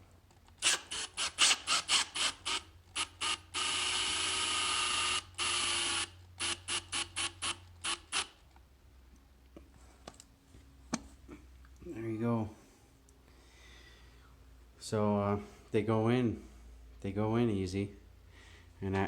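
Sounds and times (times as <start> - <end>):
power drill screwing: 0.6 - 8.4.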